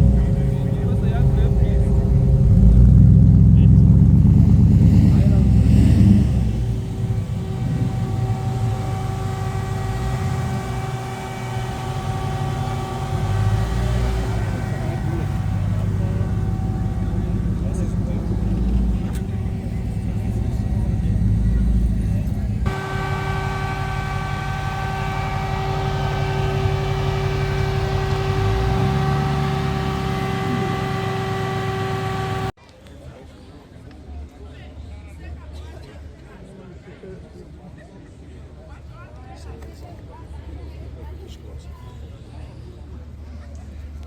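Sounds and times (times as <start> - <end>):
car engine running: 0.0 - 32.6
steady whine: 0.0 - 32.6.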